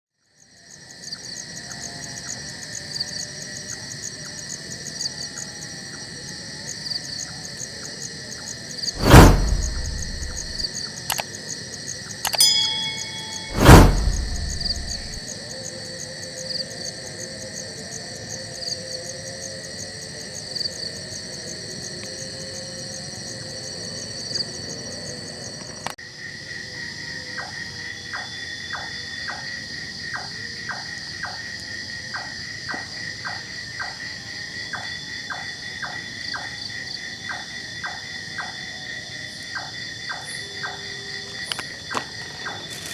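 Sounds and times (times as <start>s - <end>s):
loud thumps: 9.0s - 10.6s, 12.6s - 15.2s
crickets and insects chirring: 34.3s - 42.9s.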